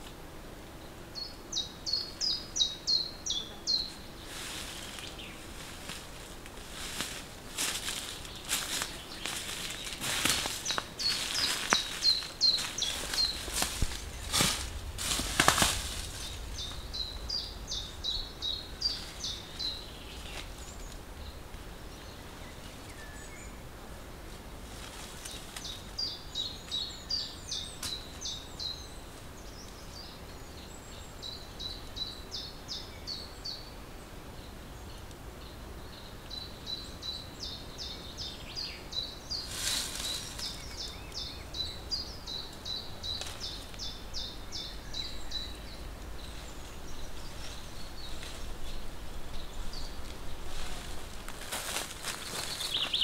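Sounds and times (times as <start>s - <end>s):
songbird chirping: 0.0s - 53.0s
branches rustling and snapping: 4.3s - 21.7s, 24.3s - 26.0s, 27.6s - 28.3s, 39.4s - 41.2s, 42.5s - 44.1s, 45.2s - 53.0s.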